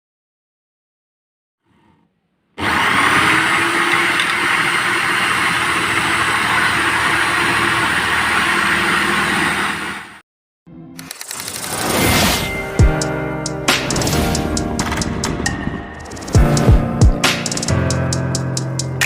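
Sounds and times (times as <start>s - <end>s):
electric drill running: 2.6s - 10.2s.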